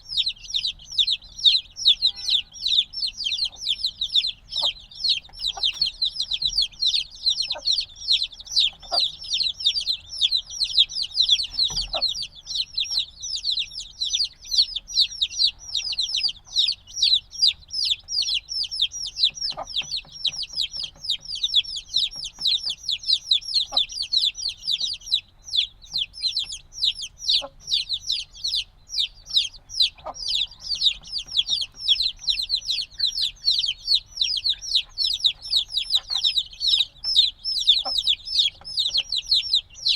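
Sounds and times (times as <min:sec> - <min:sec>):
chicks cheeping: 0:00.0 - 0:39.9
faint taps and knocks: 0:19.4 - 0:21.4.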